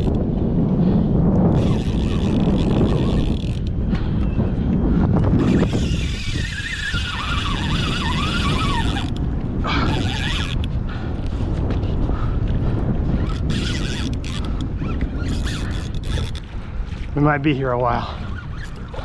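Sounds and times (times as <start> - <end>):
wind buffeting microphone: 0.0 - 19.0
fishing reel drag buzzing: 1.5 - 3.8, 5.4 - 10.7, 13.2 - 16.5.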